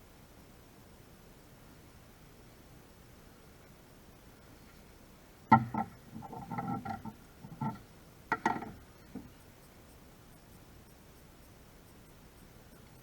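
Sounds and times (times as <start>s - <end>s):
tools clattering and knocking: 5.5s - 9.3s.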